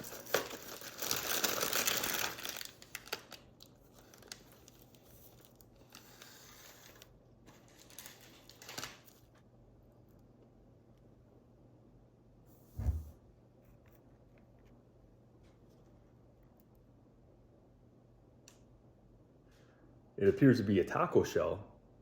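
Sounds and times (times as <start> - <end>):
food packaging crinkling and tearing: 0.0 - 9.4.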